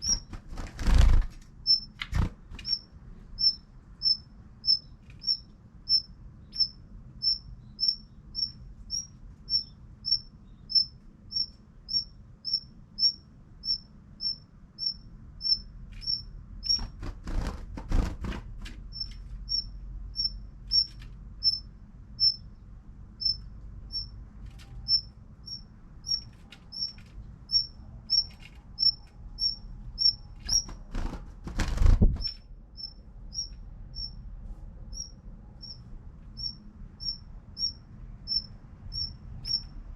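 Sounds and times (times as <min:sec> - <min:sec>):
wings flapping against window glass: 0:00.0 - 0:02.8, 0:15.9 - 0:19.4, 0:30.0 - 0:32.5.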